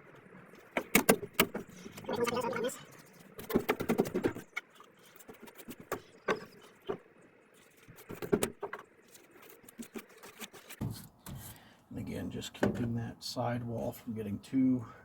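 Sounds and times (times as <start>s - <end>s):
paint brush scraping on metal: 4.3s - 11.7s.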